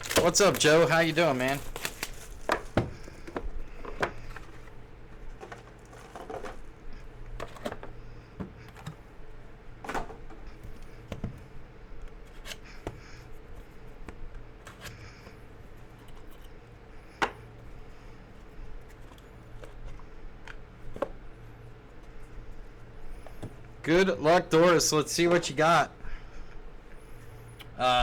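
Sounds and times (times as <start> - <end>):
packaging rustling: 0.0 - 6.8
low electrical hum: 0.0 - 28.0.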